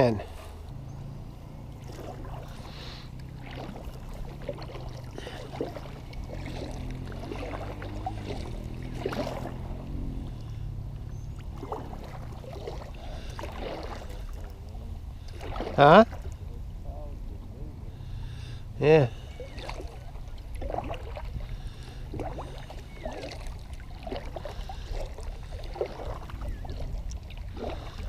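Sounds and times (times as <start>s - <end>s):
paddle splashing water: 0.0s - 16.8s, 18.0s - 28.0s
steady low rumble: 0.0s - 28.0s.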